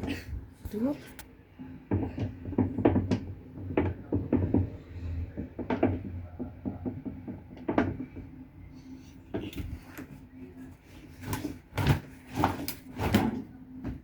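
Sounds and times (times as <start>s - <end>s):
washing machine motor hum: 0.0s - 14.0s
knocks and clunks of load: 1.9s - 8.3s.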